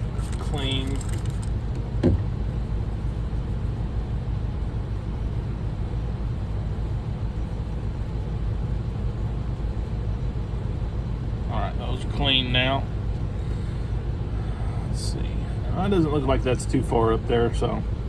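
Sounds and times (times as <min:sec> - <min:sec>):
steady low hum: 0:00.0 - 0:18.0
short knock: 0:02.0 - 0:02.4.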